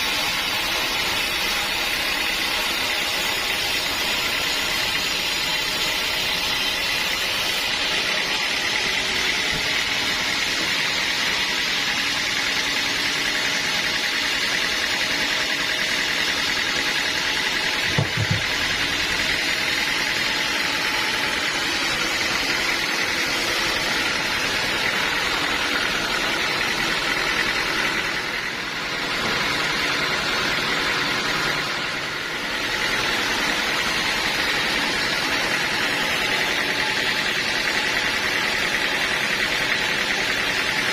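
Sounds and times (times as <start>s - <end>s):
sawmill machinery running: 0.0s - 40.9s
sharp knock: 17.9s - 18.6s.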